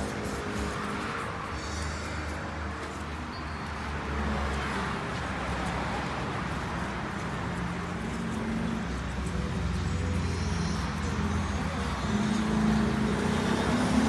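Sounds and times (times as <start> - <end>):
traffic noise: 0.0 - 14.0
low engine hum: 3.9 - 14.0.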